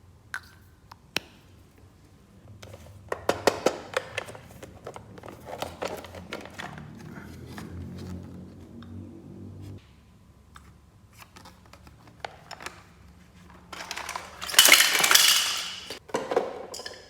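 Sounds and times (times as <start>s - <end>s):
packaging rustling: 11.3s - 16.0s
plastic toy pieces clicking: 13.8s - 16.0s.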